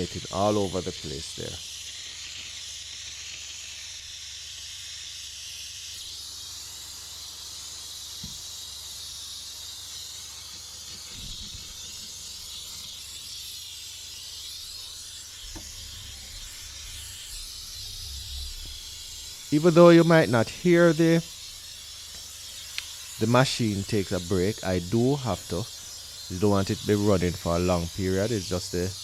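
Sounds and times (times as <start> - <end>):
steam cleaner hissing: 0.0 - 29.0.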